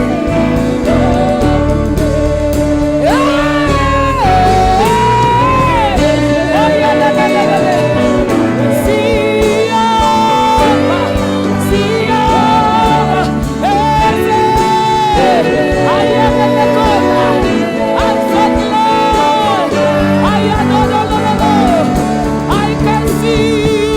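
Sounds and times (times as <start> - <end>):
band playing chords and beat: 0.0 - 23.9
person singing long notes: 0.0 - 23.9.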